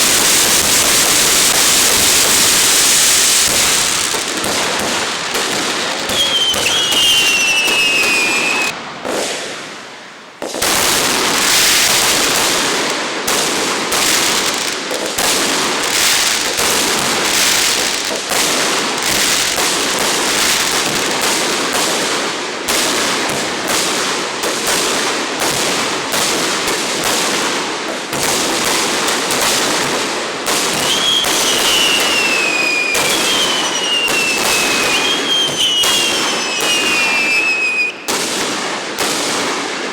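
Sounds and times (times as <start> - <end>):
fireworks whistles: 0.0 - 22.1, 30.5 - 39.6
fireworks crackling: 0.0 - 39.9.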